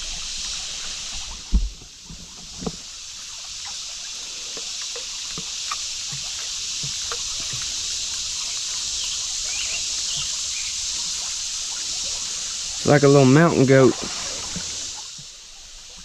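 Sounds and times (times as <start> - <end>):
creek water running: 0.0 - 16.0
small splashes and knocks: 4.6 - 8.8.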